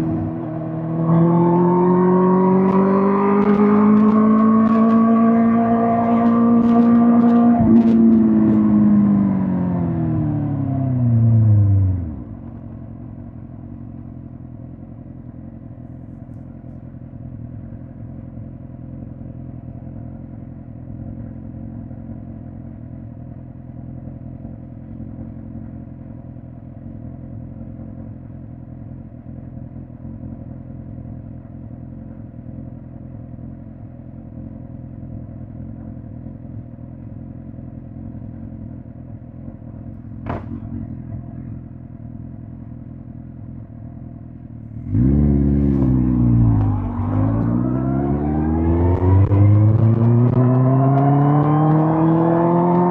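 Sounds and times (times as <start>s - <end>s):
motorcycle engine idling: 8.3s - 44.9s.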